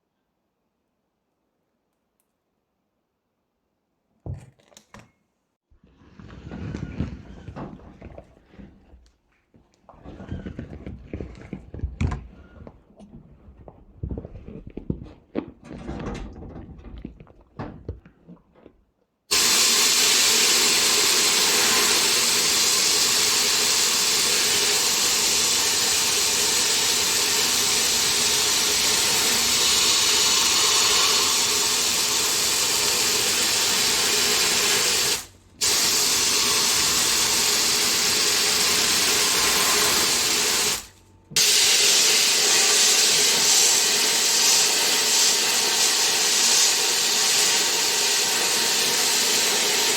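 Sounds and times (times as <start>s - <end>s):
sandblasting gun hissing: 19.3s - 49.9s.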